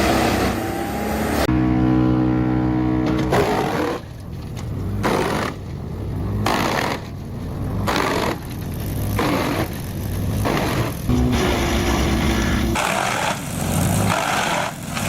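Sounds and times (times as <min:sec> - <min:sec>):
wood chipper grinding wood: 0:10.5 - 0:15.0
wood chipper engine humming: 0:11.1 - 0:12.8.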